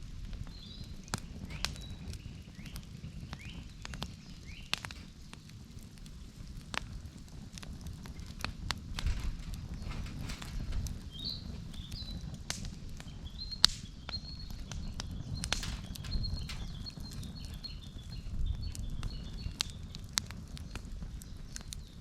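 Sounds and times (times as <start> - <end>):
campfire crackling and popping: 0.0 - 22.0
bird chirping: 9.1 - 12.3, 13.0 - 19.9.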